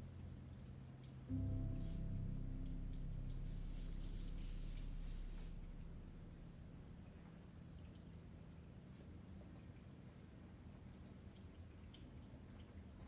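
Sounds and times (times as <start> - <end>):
soft music: 1.3 - 7.6.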